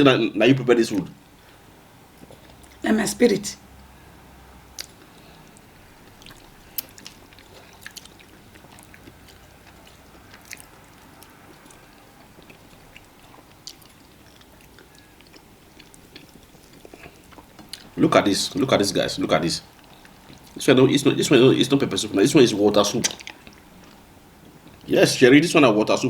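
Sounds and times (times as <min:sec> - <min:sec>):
person chewing food: 0:02.1 - 0:02.8, 0:04.7 - 0:18.0, 0:19.7 - 0:20.6, 0:23.0 - 0:24.9
mouth clicks and smacks: 0:04.8 - 0:18.0.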